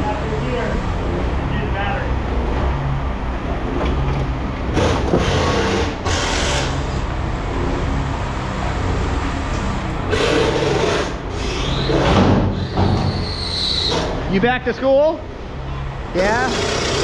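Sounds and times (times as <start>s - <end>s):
machine engine running: 0.3s - 12.7s, 16.2s - 17.0s.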